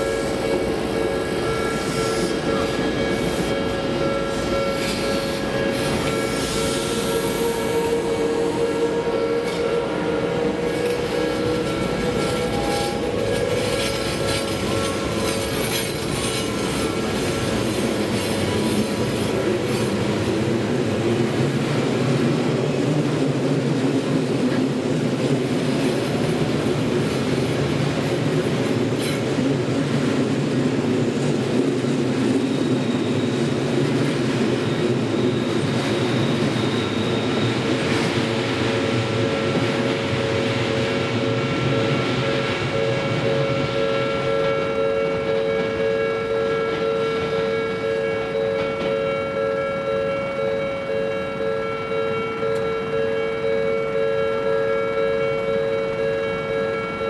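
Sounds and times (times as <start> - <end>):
train wheels clattering over rail joints: 10.6 - 20.5.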